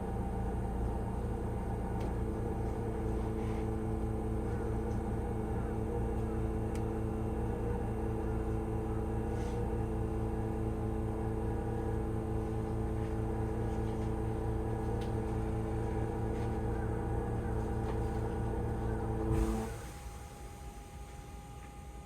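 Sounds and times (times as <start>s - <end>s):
electric train equipment hum: 0.0s - 22.0s.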